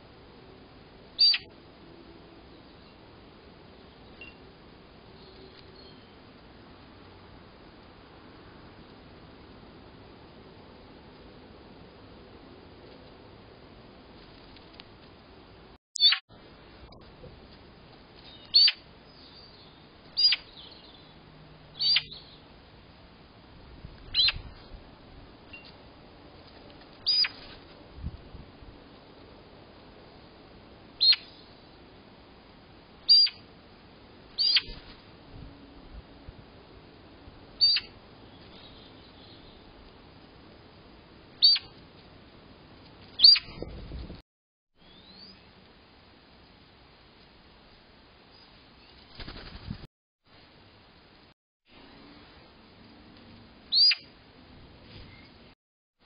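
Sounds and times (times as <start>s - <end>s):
faint rising bird call: 1.2s - 1.5s, 53.7s - 54.1s
sharp whistling bird calls: 1.2s - 1.5s, 18.3s - 21.0s, 21.8s - 22.4s, 24.1s - 24.4s, 27.0s - 27.4s, 31.0s - 31.4s, 33.1s - 33.4s, 34.4s - 34.8s, 37.6s - 39.6s, 41.4s - 41.7s, 43.2s - 43.5s, 44.8s - 45.4s, 53.7s - 54.1s
bird downward sweeping calls: 20.2s - 20.5s, 21.8s - 22.3s, 34.4s - 34.8s, 41.4s - 41.7s, 43.2s - 43.5s, 53.7s - 54.1s.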